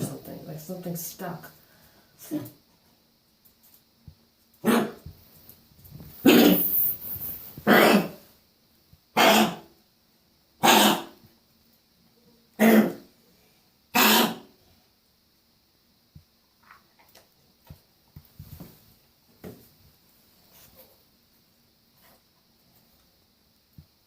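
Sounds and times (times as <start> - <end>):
dog coughing and hacking: 4.6 - 5.1, 6.2 - 6.8, 7.6 - 8.2, 9.1 - 9.7, 10.6 - 11.2, 12.6 - 13.1, 13.9 - 14.5.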